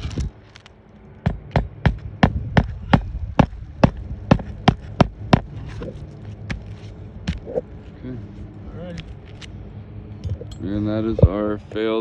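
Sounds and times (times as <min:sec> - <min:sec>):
low hum: 0:00.0 - 0:12.0
sharp knocks: 0:01.2 - 0:05.5.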